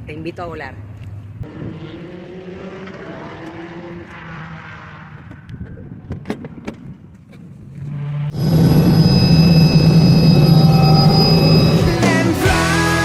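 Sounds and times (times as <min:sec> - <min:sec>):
helicopter engine running: 0:01.4 - 0:05.7, 0:08.3 - 0:12.7
loud music: 0:11.6 - 0:13.0.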